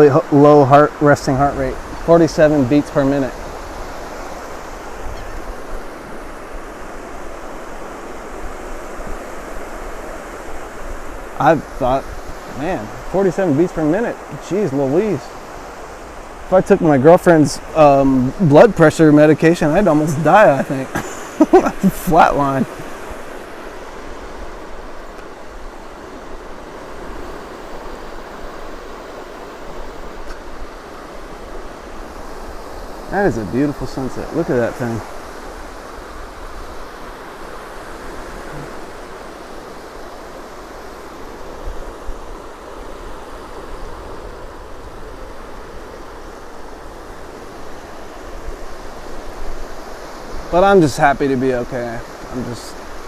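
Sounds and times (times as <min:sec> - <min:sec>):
ocean waves washing onto beach: 0:00.0 - 0:53.0
wind rumbling on microphone: 0:00.0 - 0:53.0.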